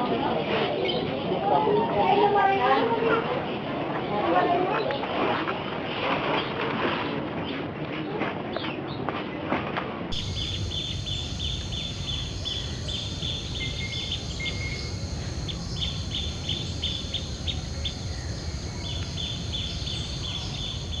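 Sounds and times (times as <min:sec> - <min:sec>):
caged songbirds chirping: 0:10.1 - 0:21.0
low market background rumble: 0:10.1 - 0:21.0.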